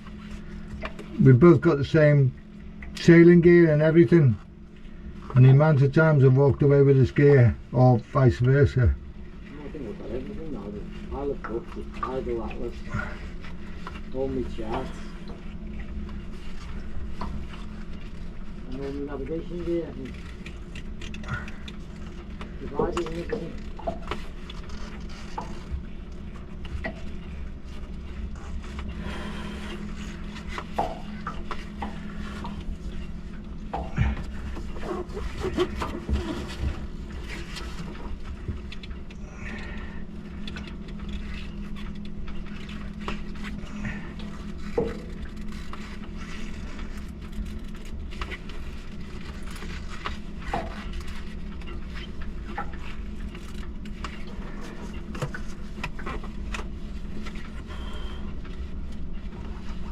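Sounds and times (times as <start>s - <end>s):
low mechanical hum: 0.0s - 59.9s.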